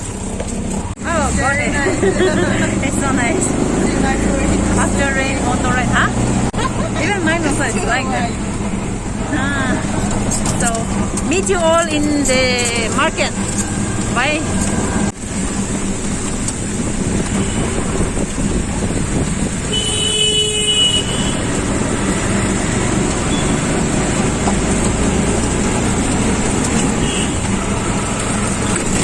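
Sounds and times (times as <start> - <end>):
road traffic noise: 0.0 - 29.0
vehicle engine running: 0.0 - 29.0
vehicle horn: 17.3 - 18.0, 19.6 - 21.6, 26.9 - 27.6.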